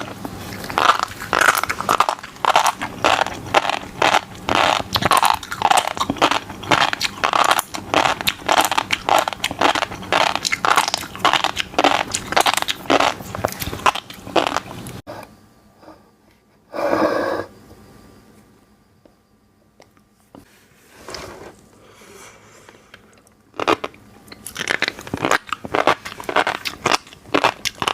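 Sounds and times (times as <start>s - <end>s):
crunchy chewing: 0.0s - 15.0s, 23.0s - 27.9s.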